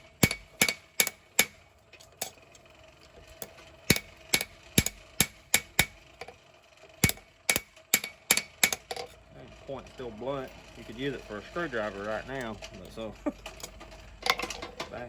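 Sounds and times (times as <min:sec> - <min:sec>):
hammer ringing on anvil: 0:00.1 - 0:01.6, 0:03.9 - 0:06.0, 0:07.0 - 0:09.0.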